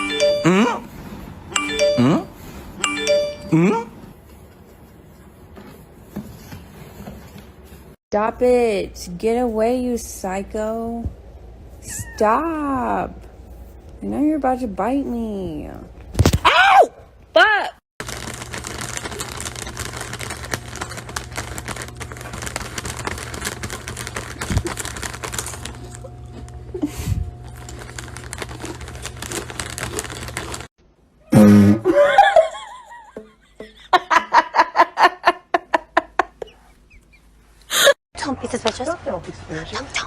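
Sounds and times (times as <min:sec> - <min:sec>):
person laughing: 0:31.4 - 0:38.0.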